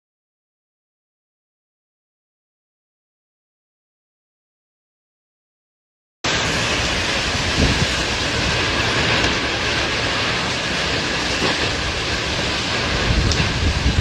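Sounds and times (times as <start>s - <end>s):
tornado winds rushing: 6.2s - 14.0s
wind buffeting microphone: 6.5s - 14.0s.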